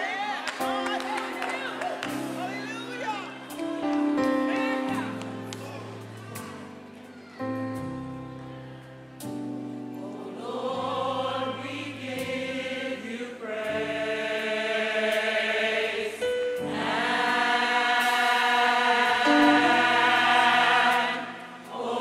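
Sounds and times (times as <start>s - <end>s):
keyboard chords: 0.0s - 22.0s
gospel choir singing: 8.6s - 22.0s.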